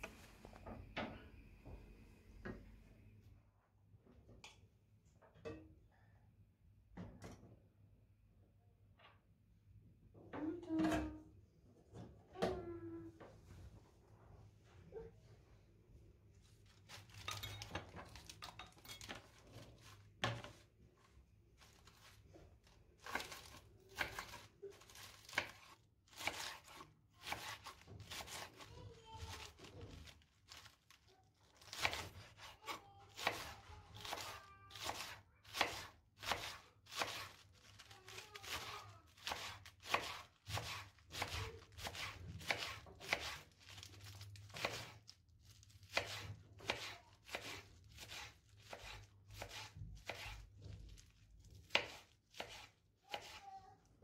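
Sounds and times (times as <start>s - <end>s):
knife chopping on cutting board: 23.0s - 28.6s, 31.7s - 37.4s, 39.2s - 43.4s, 44.1s - 45.0s, 45.9s - 50.5s, 51.6s - 53.4s.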